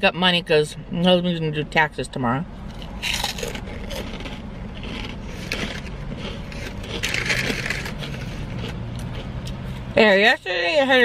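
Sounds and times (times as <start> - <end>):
crunchy chewing: 2.7 - 9.9
paper bag crinkling: 3.1 - 8.5.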